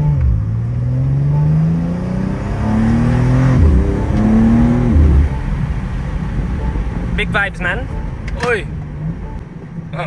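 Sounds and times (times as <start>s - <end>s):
car engine accelerating hard: 0.0s - 7.2s.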